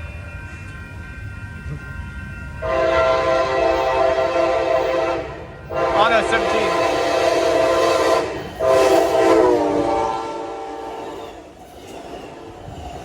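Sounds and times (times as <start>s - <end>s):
passing train rumble: 0.0s - 13.0s
locomotive air horn blasts: 2.6s - 11.2s.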